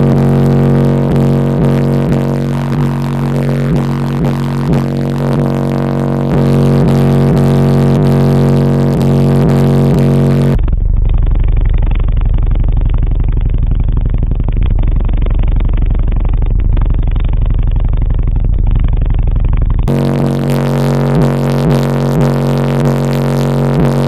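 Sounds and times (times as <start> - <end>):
music: 0.0 - 10.8, 19.9 - 24.0
deep pulsing car audio bass: 0.0 - 24.0.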